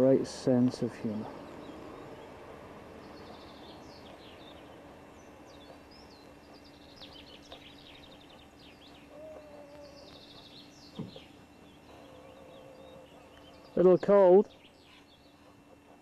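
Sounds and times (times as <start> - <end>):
faint steady hum: 0.0 - 16.0
small birds chirping: 0.4 - 16.0.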